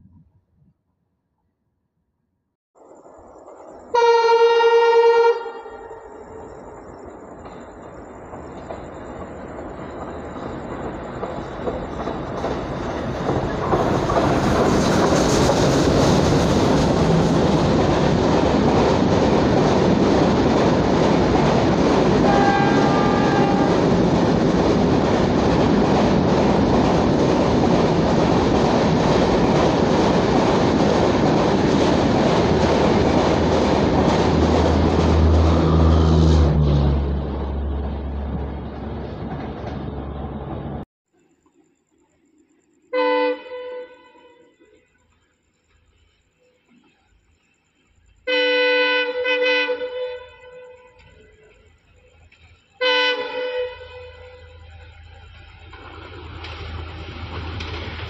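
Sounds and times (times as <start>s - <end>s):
train rushing past: 2.8s - 40.9s, 44.6s - 58.0s
train horn note: 3.9s - 6.6s, 22.2s - 24.0s, 42.9s - 44.8s, 48.3s - 51.3s, 52.8s - 54.7s.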